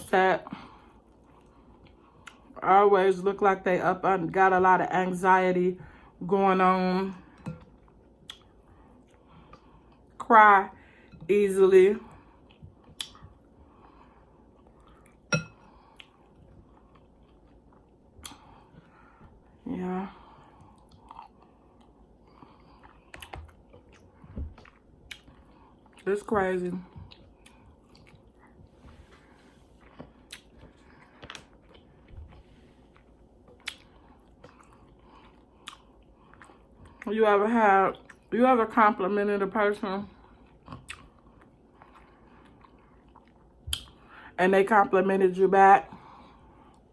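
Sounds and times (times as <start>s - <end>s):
chewing food: 0.8s - 2.6s, 7.2s - 10.2s, 12.0s - 19.2s, 20.2s - 37.1s, 40.1s - 44.1s.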